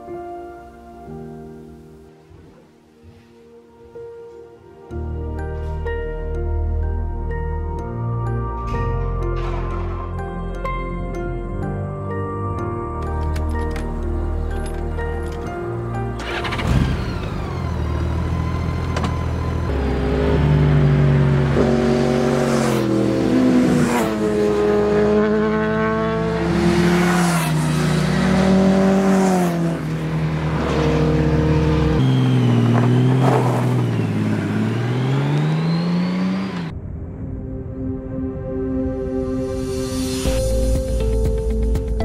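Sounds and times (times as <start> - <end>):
vehicle engine accelerating: 14.1 - 37.6.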